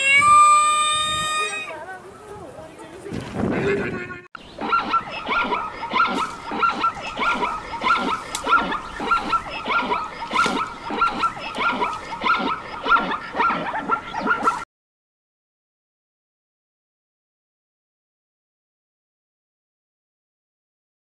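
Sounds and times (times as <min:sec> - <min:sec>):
animal yipping: 0:00.0 - 0:01.8, 0:03.6 - 0:14.6.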